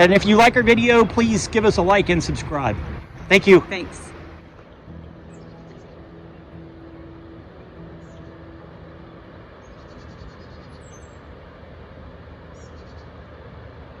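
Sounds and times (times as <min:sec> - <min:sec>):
steady rushing background: 0:00.0 - 0:14.0
small birds chirping and trilling: 0:03.0 - 0:11.5, 0:12.5 - 0:13.2.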